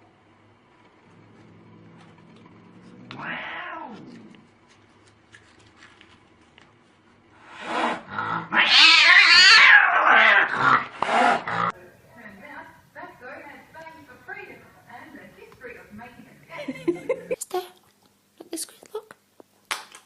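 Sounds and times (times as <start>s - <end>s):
cat yowling: 3.1s - 4.2s, 8.4s - 10.8s
cat meowing: 3.1s - 4.3s, 8.5s - 10.5s.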